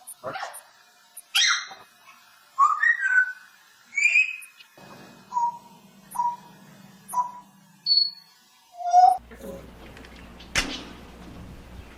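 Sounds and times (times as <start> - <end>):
parrot whistling: 2.6 - 4.5, 5.3 - 6.5, 7.1 - 8.2, 8.8 - 9.2.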